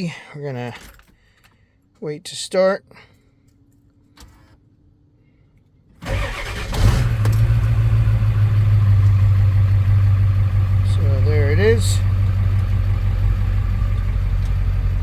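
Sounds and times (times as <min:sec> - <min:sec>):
diesel engine cranking and idling: 0:06.0 - 0:15.0.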